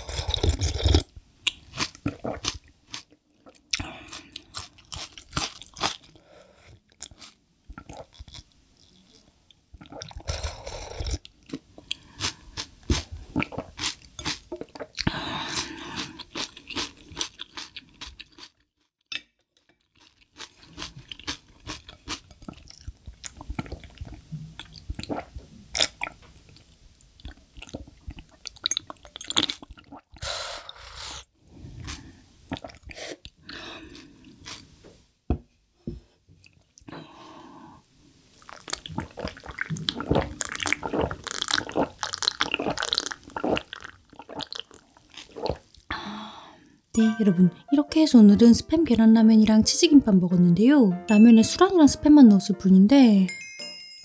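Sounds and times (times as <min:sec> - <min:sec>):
person chewing and crunching food: 0:00.0 - 0:31.2, 0:31.8 - 0:34.8, 0:38.4 - 0:45.9.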